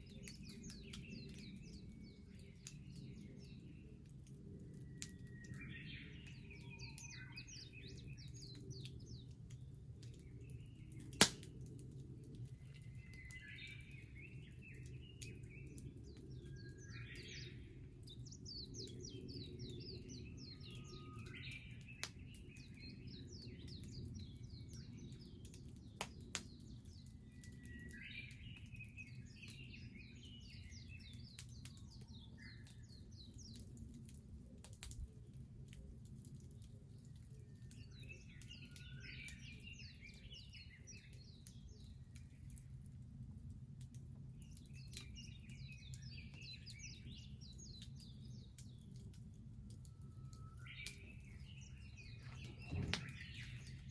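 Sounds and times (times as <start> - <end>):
bonfire burning and popping: 0.0 - 53.9
birds trilling: 50.8 - 53.9.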